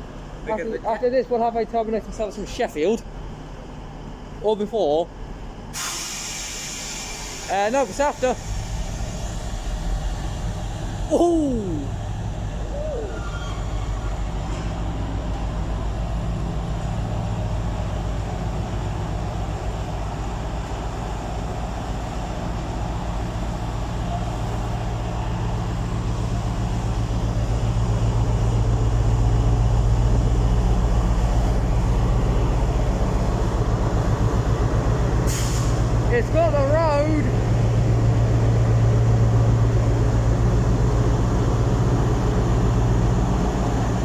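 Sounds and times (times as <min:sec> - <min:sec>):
locomotive engine throbbing: 0:07.6 - 0:44.0.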